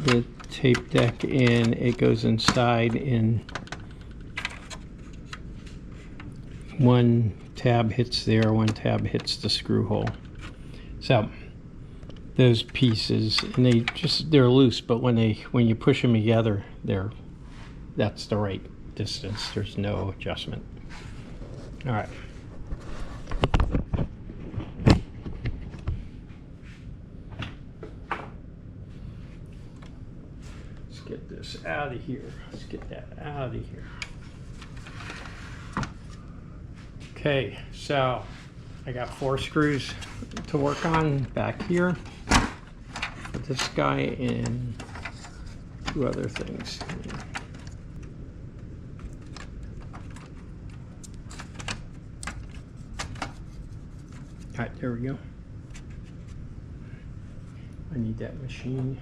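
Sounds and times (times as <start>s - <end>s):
cassette deck parts clicking: 0.0s - 5.4s, 49.0s - 53.4s.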